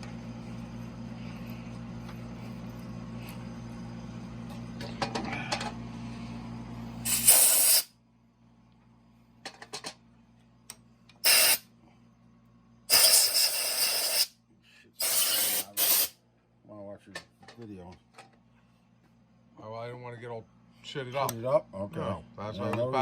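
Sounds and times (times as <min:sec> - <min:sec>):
steady machine hum: 0:00.0 - 0:15.0
compressed air hissing: 0:07.0 - 0:07.9, 0:11.2 - 0:11.6, 0:12.9 - 0:14.3, 0:15.0 - 0:16.2.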